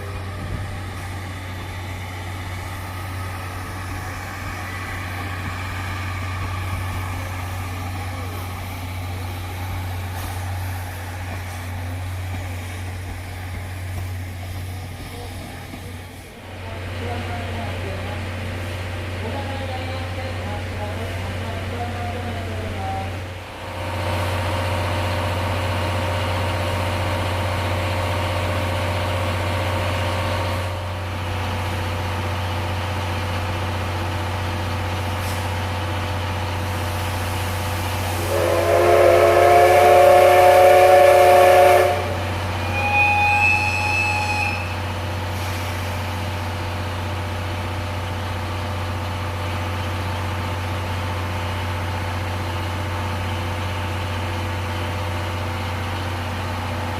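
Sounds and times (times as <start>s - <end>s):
standing train humming: 0.0s - 56.9s
train horn blast: 38.2s - 44.8s.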